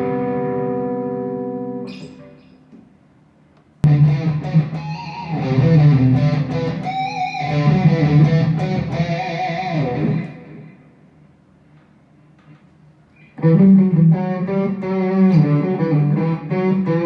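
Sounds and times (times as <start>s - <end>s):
electric guitar melody: 0.0s - 2.7s, 3.8s - 10.9s, 13.3s - 17.0s.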